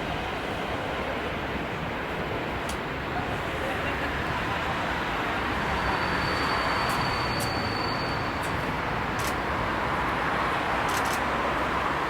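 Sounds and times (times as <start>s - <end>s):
train rumbling: 1.6s - 11.9s
sharp clicks: 9.2s - 9.4s, 10.9s - 11.3s.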